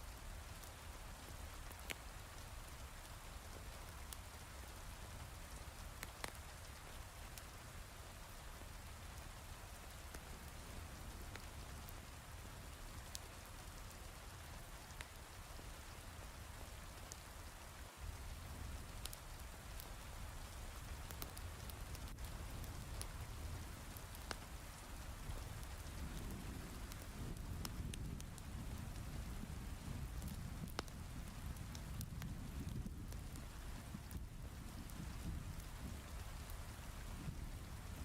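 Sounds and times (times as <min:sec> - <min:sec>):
heavy rain hiss: 0:00.0 - 0:38.0
wood fire crackling: 0:00.0 - 0:38.0.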